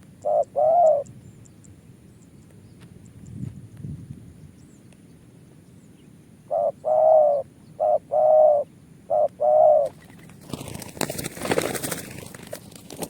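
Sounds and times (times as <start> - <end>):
dove cooing: 0.2 - 1.1, 6.5 - 12.0.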